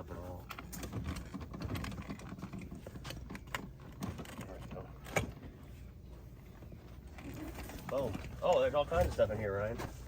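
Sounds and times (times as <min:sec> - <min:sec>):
clicks and knocks while rummaging: 0:00.0 - 0:05.6.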